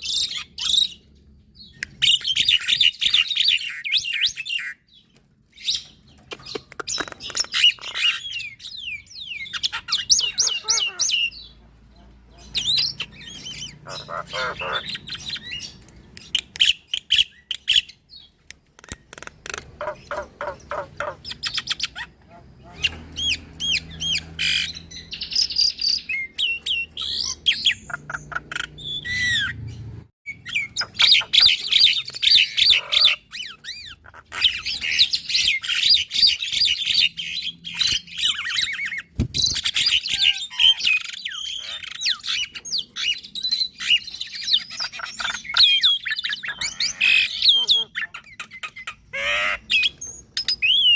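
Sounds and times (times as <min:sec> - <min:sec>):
mynas chattering song: 0:09.4 - 0:16.6.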